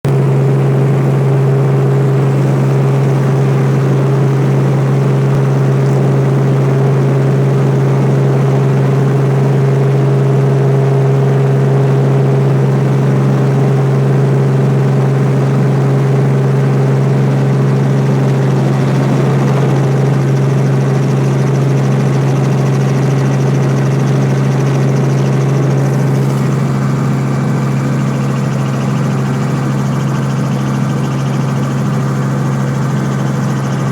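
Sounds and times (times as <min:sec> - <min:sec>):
helicopter drone: 0:00.1 - 0:33.9.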